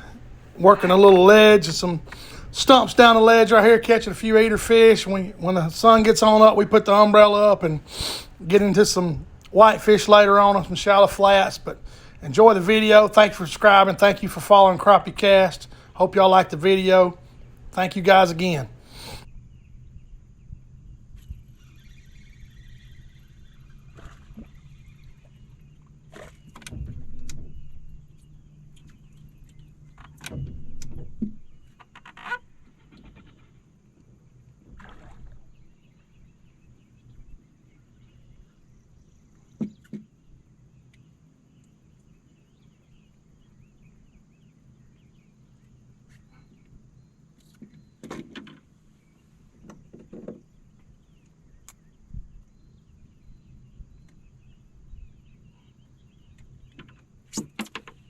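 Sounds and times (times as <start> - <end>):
steady low hum: 0.0 - 32.8.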